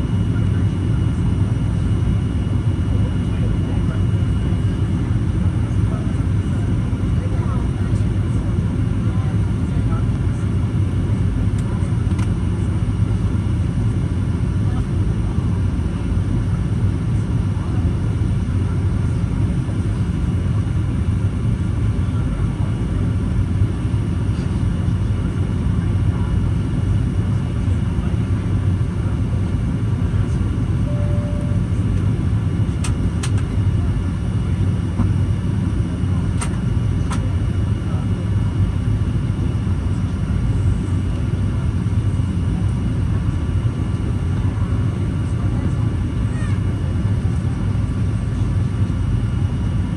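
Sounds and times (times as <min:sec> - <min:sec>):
jet cabin engine and airflow noise: 0:00.0 - 0:49.9.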